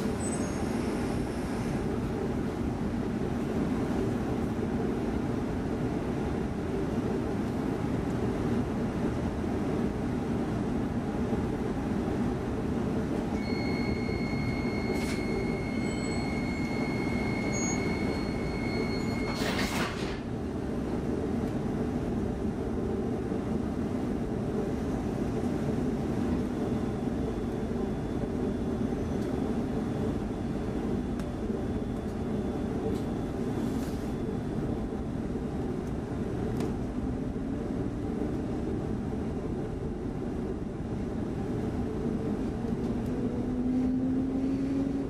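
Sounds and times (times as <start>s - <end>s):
train equipment hum: 0.0s - 45.0s
high beep: 13.4s - 19.6s
train doors thudding shut: 18.0s - 20.3s.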